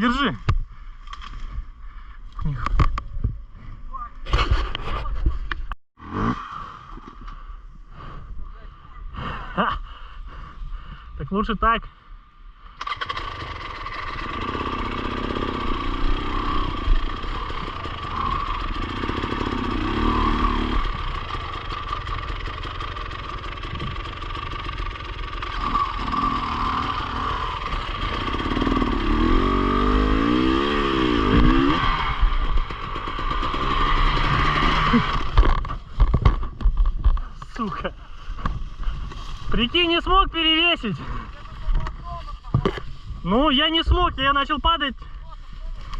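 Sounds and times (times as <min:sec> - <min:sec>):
motorcycle engine revving: 0:12.8 - 0:37.3.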